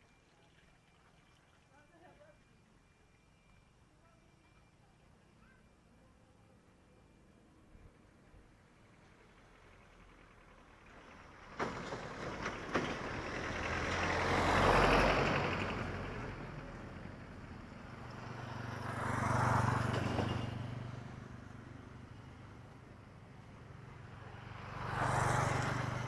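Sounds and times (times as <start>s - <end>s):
motor vehicles passing by: 8.0s - 26.0s.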